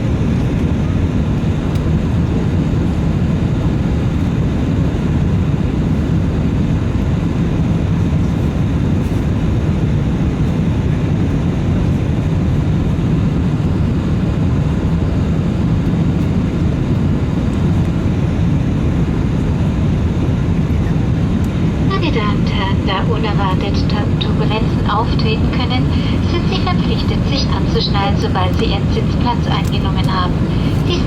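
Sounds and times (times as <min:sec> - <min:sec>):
jet engines roaring in cabin: 0:00.0 - 0:31.0
rushing air: 0:23.9 - 0:28.1, 0:30.2 - 0:31.0.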